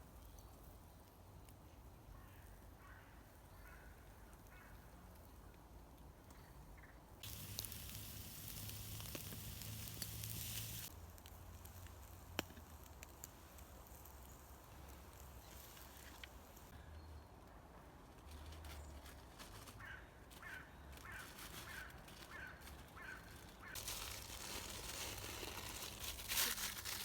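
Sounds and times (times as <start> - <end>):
food sizzling over campfire: 7.2 - 16.7, 23.7 - 27.0.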